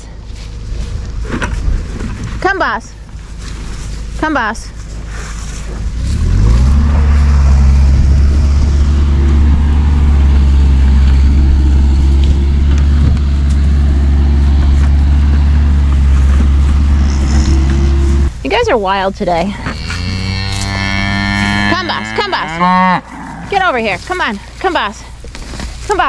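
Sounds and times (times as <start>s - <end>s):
large engine revving: 5.8s - 18.8s, 19.6s - 24.3s.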